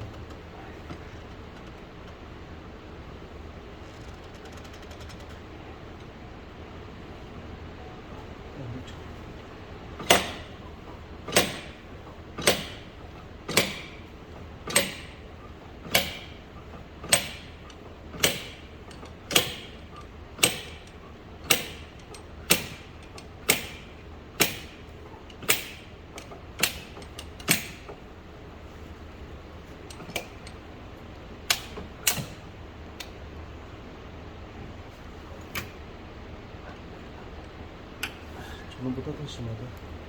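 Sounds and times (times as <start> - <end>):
slide hammer metal knocks: 10.0 - 10.7, 11.3 - 11.8, 12.4 - 28.0.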